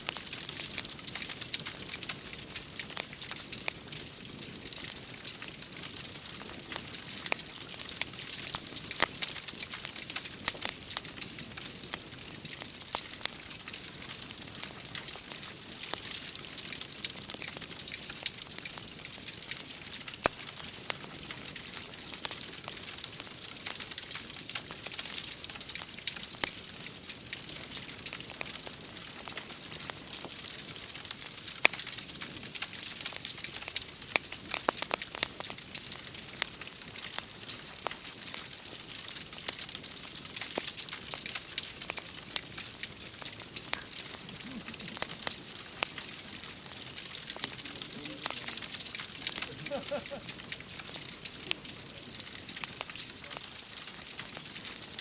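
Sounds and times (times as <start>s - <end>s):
wood fire crackling: 0.0s - 55.0s
rain hissing: 19.1s - 55.0s.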